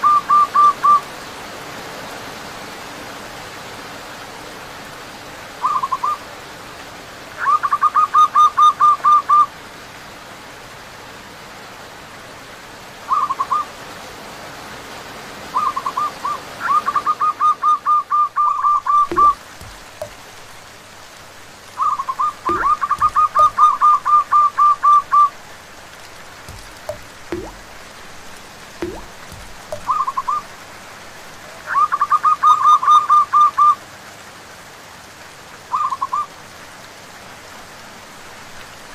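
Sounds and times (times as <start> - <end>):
steady rain: 0.0 - 38.9
doves cooing: 15.6 - 30.6
soft low knocks: 19.1 - 21.5, 22.5 - 24.0, 25.9 - 30.2.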